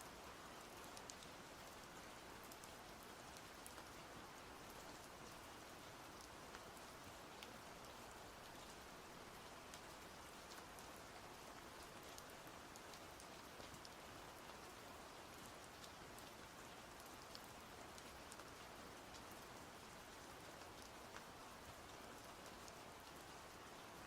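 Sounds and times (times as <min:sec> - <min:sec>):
faint steady rain: 0:00.0 - 0:24.0.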